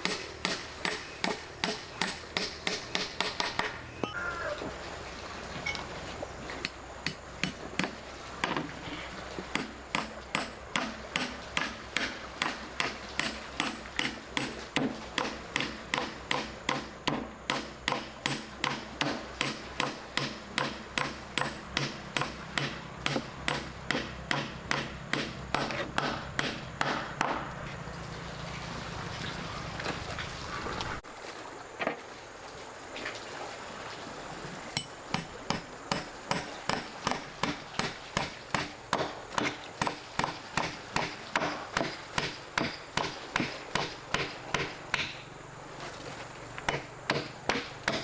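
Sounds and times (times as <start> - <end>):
rhythmic hammering: 0.0 - 4.2, 9.5 - 27.5.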